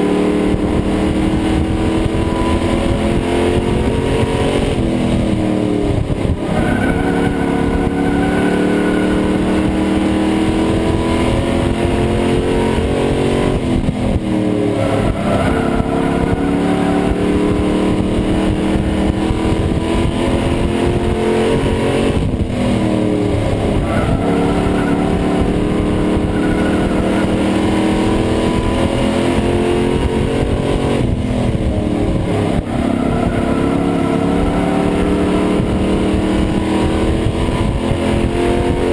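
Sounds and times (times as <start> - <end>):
racing truck engine at full throttle: 0.0 - 38.9.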